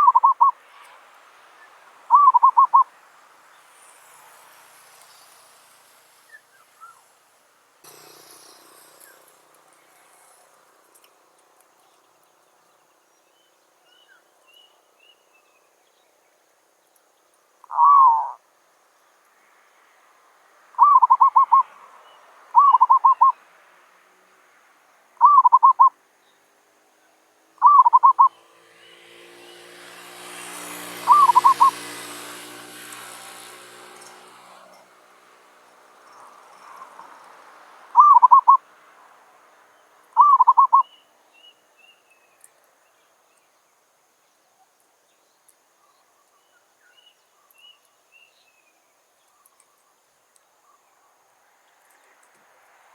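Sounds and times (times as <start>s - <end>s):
dove cooing: 0.0s - 0.5s, 2.1s - 2.8s, 17.7s - 18.4s, 20.8s - 21.7s, 22.6s - 23.3s, 25.2s - 25.9s, 27.6s - 28.3s, 31.0s - 31.9s, 38.0s - 38.6s, 40.2s - 40.8s.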